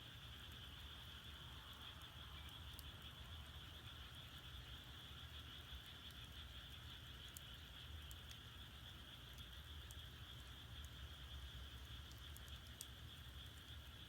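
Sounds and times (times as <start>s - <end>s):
frogs and insects calling: 0.0s - 14.0s
firewood crackling: 0.1s - 14.0s.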